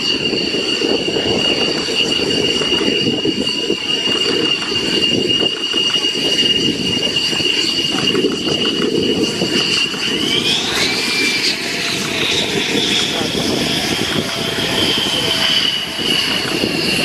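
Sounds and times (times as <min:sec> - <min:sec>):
jet engine whining: 0:00.0 - 0:17.0.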